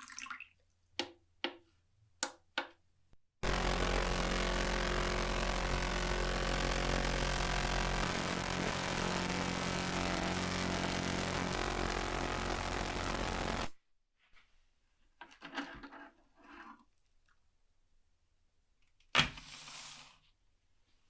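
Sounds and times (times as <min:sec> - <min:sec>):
hissing noise: 0:03.4 - 0:13.8
workshop machine humming: 0:03.4 - 0:13.8
faint scrapes and knocks: 0:15.2 - 0:17.0.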